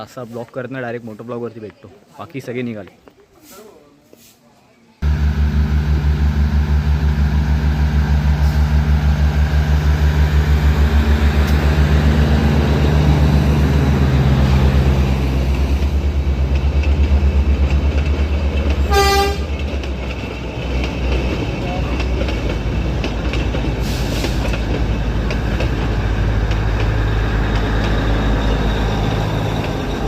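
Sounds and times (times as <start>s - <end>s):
locomotive engine beat: 5.0s - 30.0s
train horn toot: 18.8s - 19.6s.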